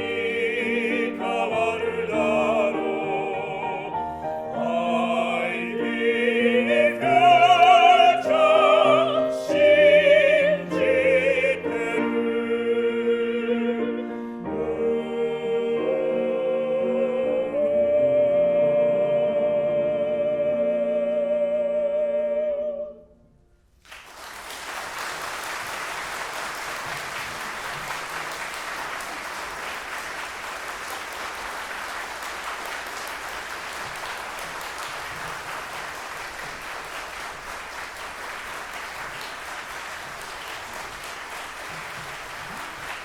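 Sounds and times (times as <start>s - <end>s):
opera voices singing with vibrato: 0.0s - 23.2s
audience applause: 23.8s - 43.0s.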